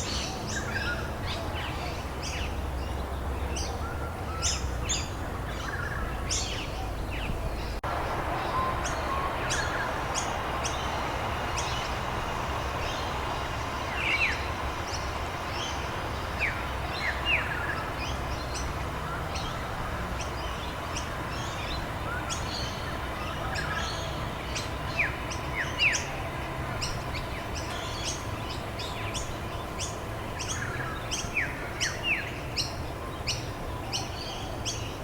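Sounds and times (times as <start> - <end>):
small birds chirping: 0.0 - 35.0
rain hiss: 7.8 - 33.1.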